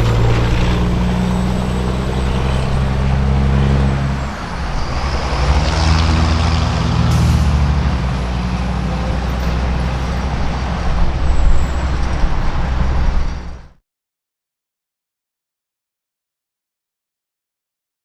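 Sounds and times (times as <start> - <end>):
truck diesel engine droning: 0.0 - 13.8.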